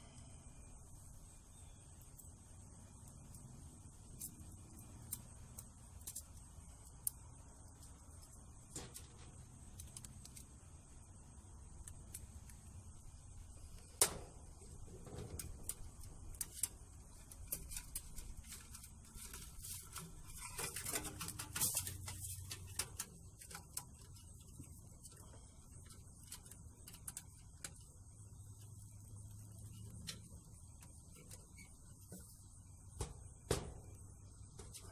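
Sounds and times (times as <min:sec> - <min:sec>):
faint steady hum: 0:00.0 - 0:34.9
metal parts and tools rattling: 0:14.8 - 0:24.2.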